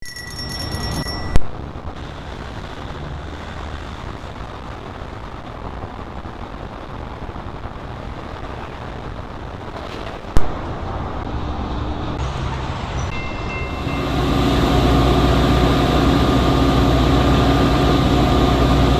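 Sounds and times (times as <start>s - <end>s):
passing traffic rumble: 0.4s - 18.9s.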